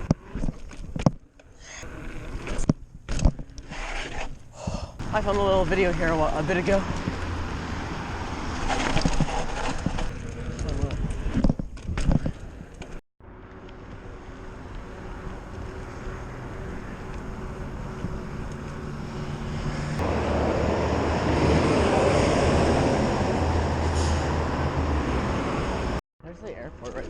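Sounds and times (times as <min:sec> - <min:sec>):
airplane engines droning: 0:13.2 - 0:26.0.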